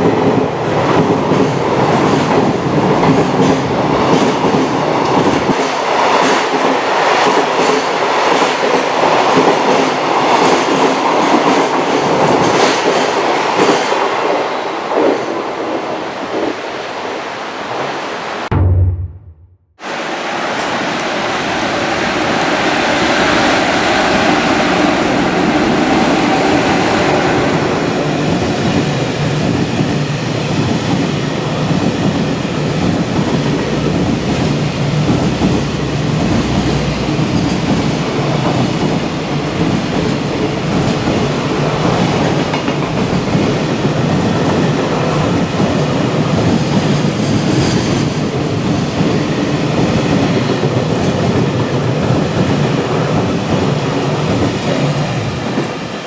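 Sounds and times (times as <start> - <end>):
freight train rumbling past: 18.5 - 56.0.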